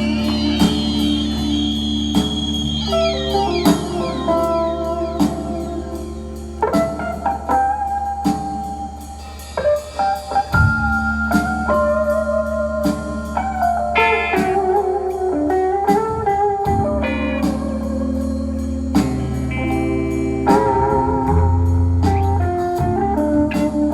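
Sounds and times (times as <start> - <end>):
sliding guitar notes: 0.0 - 7.8
blues band playing: 0.0 - 23.9.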